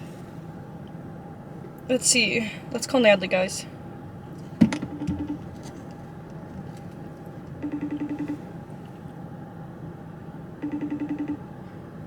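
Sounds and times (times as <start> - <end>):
phone ringing tone: 4.8 - 5.5, 7.6 - 8.5, 10.6 - 11.5.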